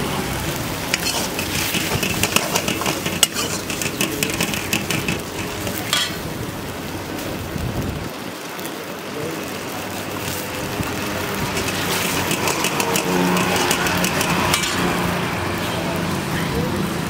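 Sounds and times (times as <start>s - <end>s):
roadside traffic noise: 0.0s - 17.0s
engine hum: 9.7s - 17.0s.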